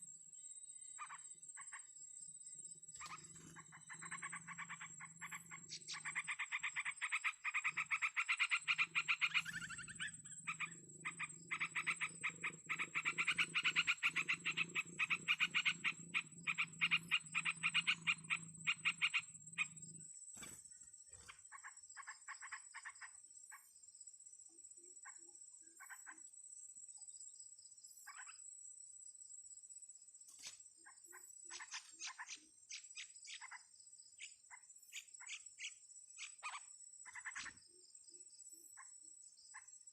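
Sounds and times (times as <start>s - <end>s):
pulsed animal calls: 3.0s - 20.0s.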